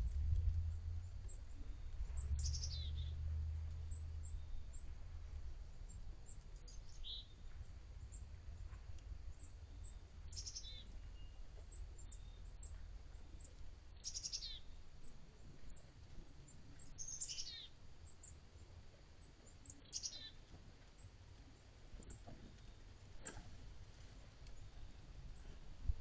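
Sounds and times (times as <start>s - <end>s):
steady low rumble: 0.0s - 17.0s, 22.6s - 26.0s
songbirds calling: 0.0s - 21.2s.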